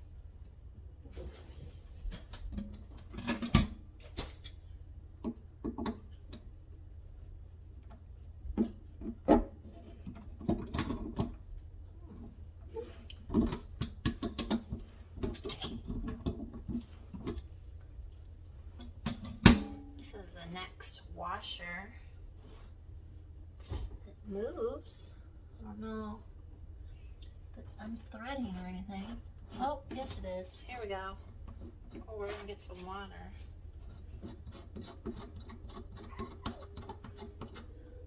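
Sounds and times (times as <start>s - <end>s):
steady low hum: 0.0s - 38.0s
faucet parts clicking and scraping: 33.8s - 38.0s.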